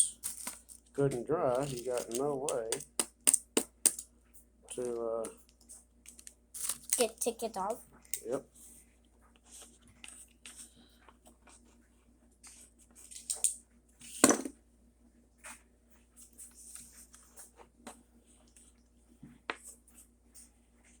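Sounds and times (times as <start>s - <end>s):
small hard objects clicking: 0.0s - 4.0s.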